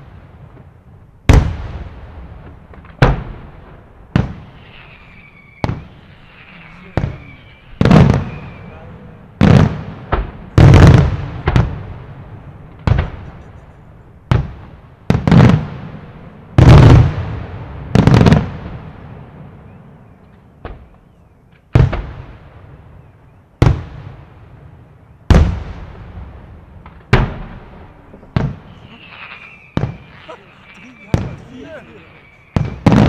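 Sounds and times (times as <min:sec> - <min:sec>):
firework booms with echo: 0:01.3 - 0:05.0, 0:05.6 - 0:06.2, 0:06.9 - 0:08.7, 0:09.4 - 0:13.3, 0:14.3 - 0:19.6, 0:21.7 - 0:22.8, 0:25.3 - 0:33.0.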